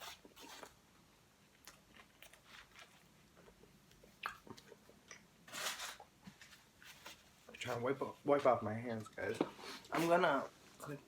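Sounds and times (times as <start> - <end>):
person chewing food: 1.5 - 5.3.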